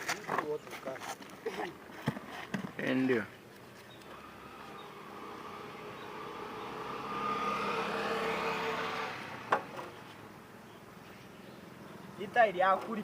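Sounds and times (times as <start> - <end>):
vehicle engine passing by: 4.1 - 10.5.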